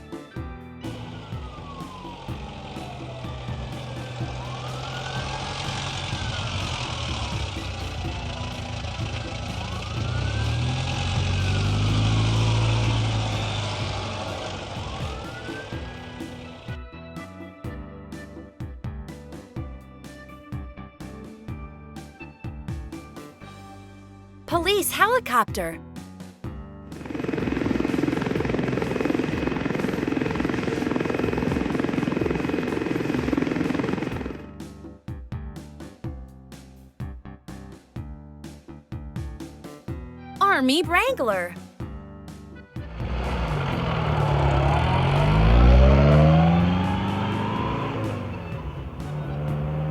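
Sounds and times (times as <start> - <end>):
police siren wailing: 1.0 - 16.7
vehicle rumble: 1.0 - 16.7, 42.8 - 49.9
helicopter rotor chopping: 2.0 - 16.7, 27.0 - 34.4, 43.2 - 49.9.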